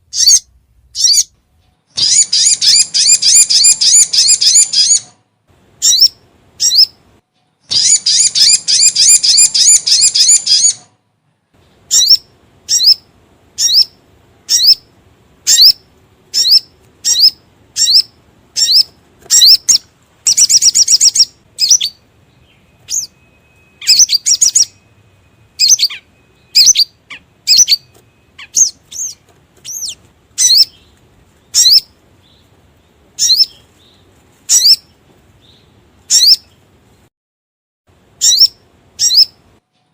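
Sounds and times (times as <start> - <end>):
bird trilling and chirping: 0.1 - 5.2, 5.8 - 7.0, 7.6 - 10.9, 11.6 - 36.6, 38.2 - 39.4.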